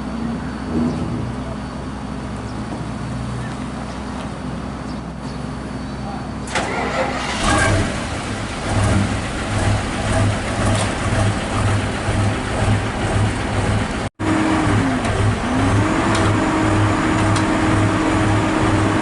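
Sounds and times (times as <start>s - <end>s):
excavator diesel engine throbbing: 7.2s - 19.0s.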